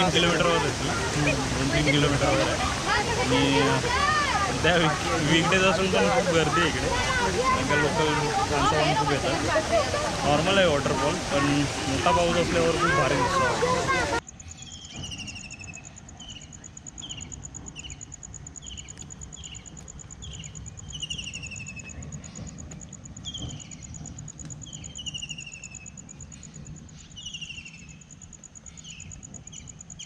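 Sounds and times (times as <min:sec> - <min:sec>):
cricket trill: 0:14.2 - 0:30.0.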